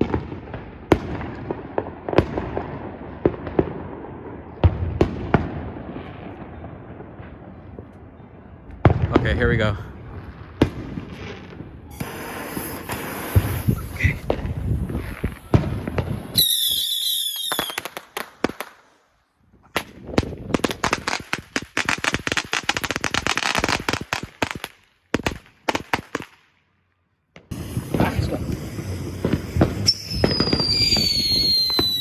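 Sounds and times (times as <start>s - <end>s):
fireworks bangs and pops: 0.0s - 8.0s, 8.7s - 26.5s, 27.4s - 32.0s
firecrackers crackling: 8.9s - 26.5s, 27.4s - 32.0s
shrill wavering firework whistle: 11.8s - 18.0s, 27.5s - 32.0s.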